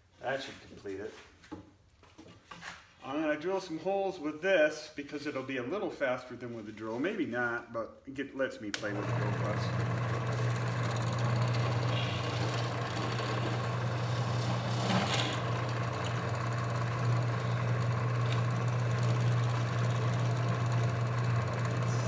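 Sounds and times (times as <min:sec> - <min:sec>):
drill press motor humming: 0:08.8 - 0:22.0.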